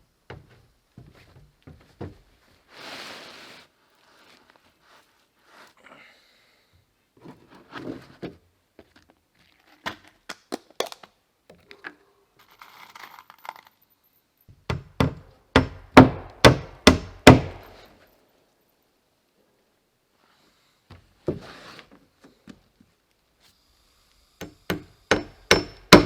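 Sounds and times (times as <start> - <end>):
rustling: 2.4 - 5.8
hammer hitting nail into wood: 14.7 - 17.8, 24.4 - 26.0.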